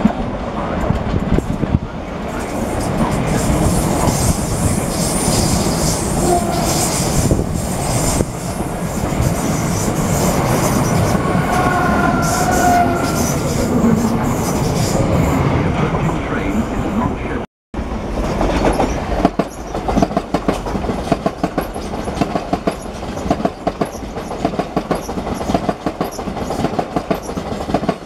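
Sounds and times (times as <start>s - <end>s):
train passing at speed: 0.0s - 28.0s
wheels rumbling on rail: 0.0s - 28.0s
rail-joint clicks: 18.2s - 28.0s.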